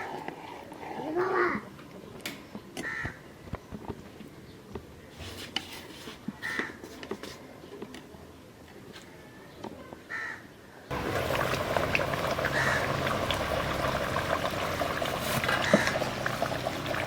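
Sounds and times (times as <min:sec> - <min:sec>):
bird calling: 0:10.2 - 0:17.0.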